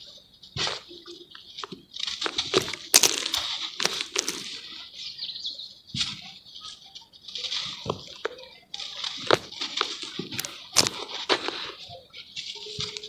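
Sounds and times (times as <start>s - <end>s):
charcoal crackling in water: 1.3s - 4.7s, 7.4s - 11.8s.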